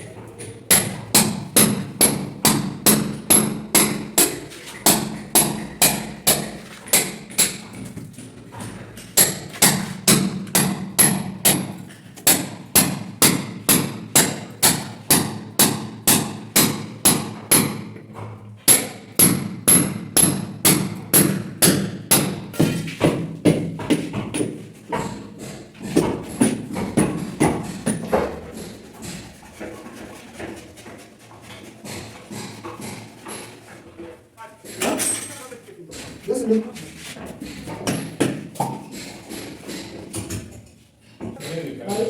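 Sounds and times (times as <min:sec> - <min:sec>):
hammer striking metal: 0:00.7 - 0:07.7, 0:09.2 - 0:17.9, 0:18.7 - 0:29.1.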